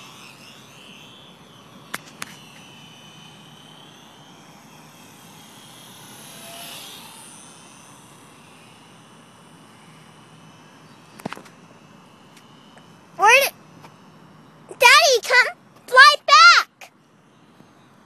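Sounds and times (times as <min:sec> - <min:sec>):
model plane motor whining: 0:00.0 - 0:16.6.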